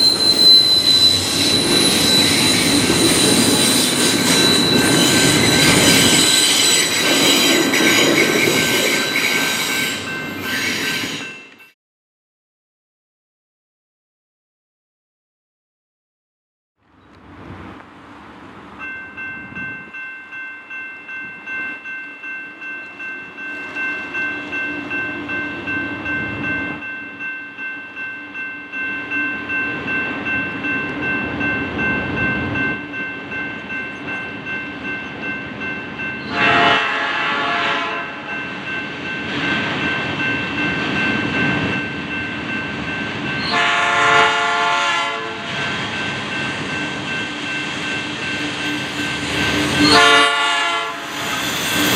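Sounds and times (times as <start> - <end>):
bell ringing: 0.0 - 11.8
diesel locomotive: 0.0 - 11.8, 16.8 - 51.9
locomotive horn: 36.3 - 38.2, 43.5 - 45.5, 49.8 - 51.1.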